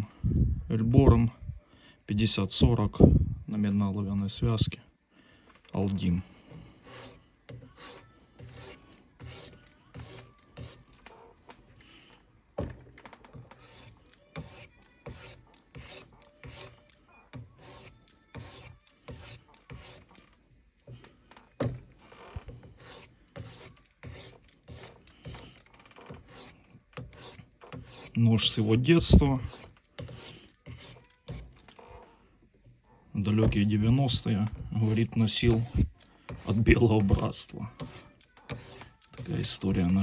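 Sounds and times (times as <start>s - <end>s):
knife rasping on sharpening stone: 6.8s - 11.0s, 13.5s - 20.3s, 22.8s - 25.6s, 26.2s - 31.7s, 34.8s - 40.0s.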